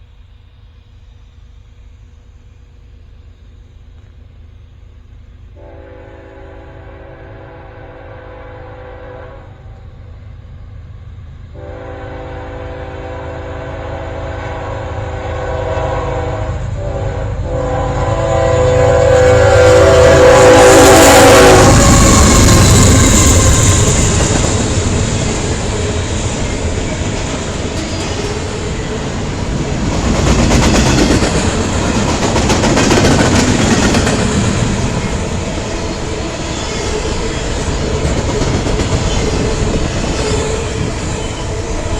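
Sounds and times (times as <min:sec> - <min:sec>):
locomotive horn blasts: 0:05.6 - 0:09.8, 0:11.6 - 0:22.0.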